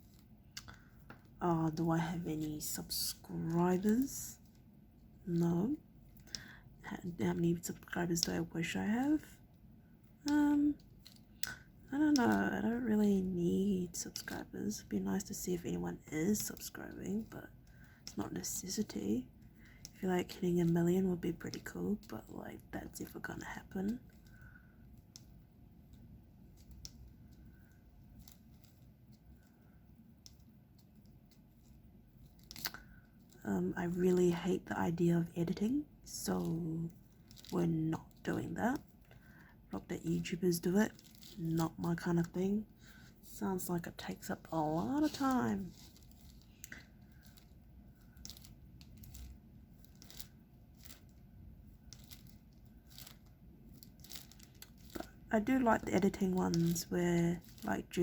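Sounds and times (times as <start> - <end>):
crinkly rustles: 16.3 - 34.6, 35.2 - 58.0.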